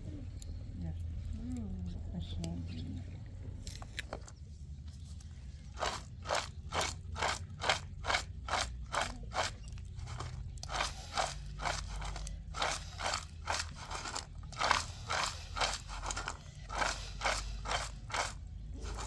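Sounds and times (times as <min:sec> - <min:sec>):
low steady hum: 0:00.0 - 0:19.0
crunching scraping strokes: 0:05.2 - 0:19.0.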